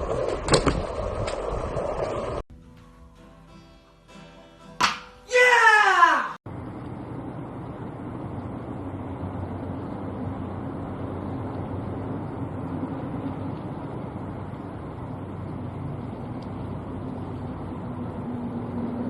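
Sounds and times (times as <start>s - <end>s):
low engine drone: 6.5s - 19.0s.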